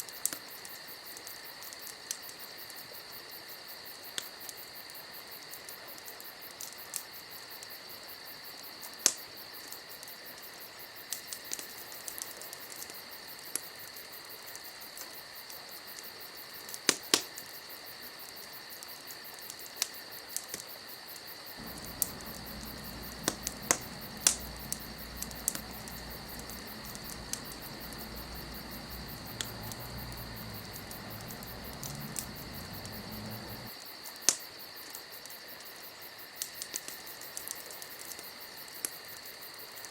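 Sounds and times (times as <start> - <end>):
fire crackling and popping: 11.1 - 15.6, 21.6 - 35.0, 36.4 - 38.2
low rumble: 21.6 - 33.7.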